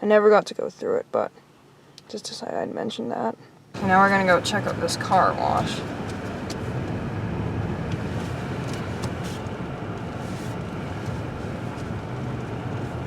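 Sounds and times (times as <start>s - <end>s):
car engine running: 3.8s - 13.0s.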